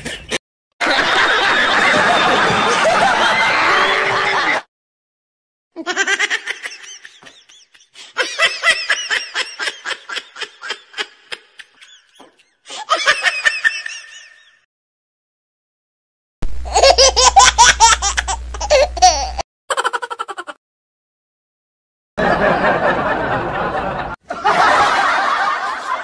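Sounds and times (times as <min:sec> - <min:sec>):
high-pitched comic laughter: 0:00.0 - 0:04.6, 0:05.8 - 0:14.6, 0:16.6 - 0:20.6.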